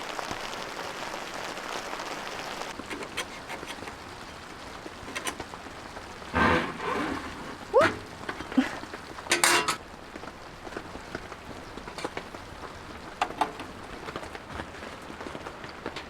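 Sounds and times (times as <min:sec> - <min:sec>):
rain pattering: 0:00.0 - 0:16.0
kitchenware clinking and clattering: 0:02.8 - 0:04.1, 0:05.0 - 0:05.5, 0:06.3 - 0:09.8, 0:11.8 - 0:12.3, 0:13.2 - 0:13.8.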